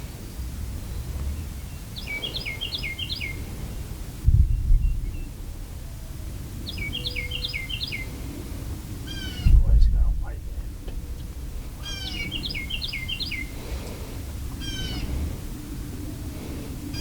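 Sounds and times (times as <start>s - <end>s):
wind rumble on microphone: 0.0s - 17.0s
songbird whistling: 6.7s - 8.1s, 11.8s - 13.5s.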